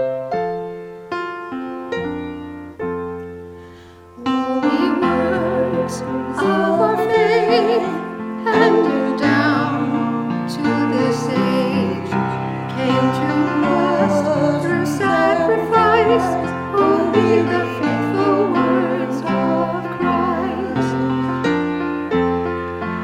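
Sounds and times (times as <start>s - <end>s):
piano playing slow chords: 0.0s - 23.0s
person singing with vibrato: 4.2s - 21.5s.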